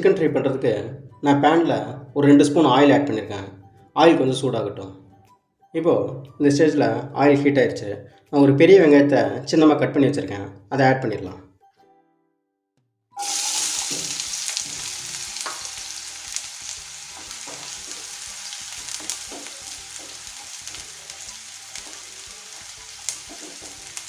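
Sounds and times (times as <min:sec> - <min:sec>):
onion sizzling in hot oil: 0:13.2 - 0:24.0.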